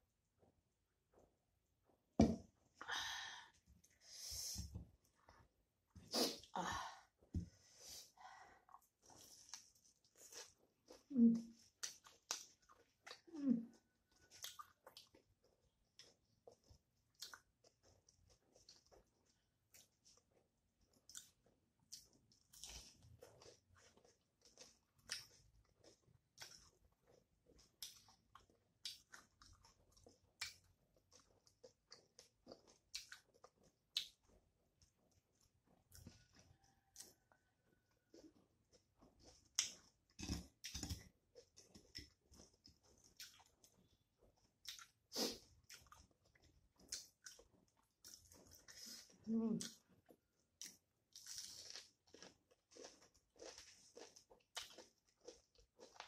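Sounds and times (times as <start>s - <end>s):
faint chewing of food: 0.2s - 56.0s
wet mouth clicks and smacks: 11.8s - 13.3s, 14.4s - 15.2s, 17.1s - 17.5s, 30.4s - 30.6s, 32.8s - 34.2s, 44.6s - 46.0s.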